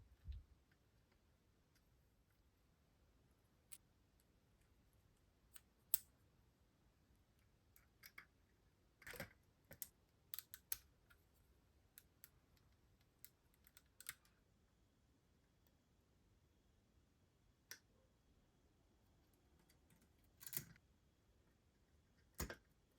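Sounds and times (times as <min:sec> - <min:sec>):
light clicks of plastic parts: 0:07.4 - 0:08.4, 0:09.0 - 0:14.4, 0:19.2 - 0:20.8, 0:22.1 - 0:22.8.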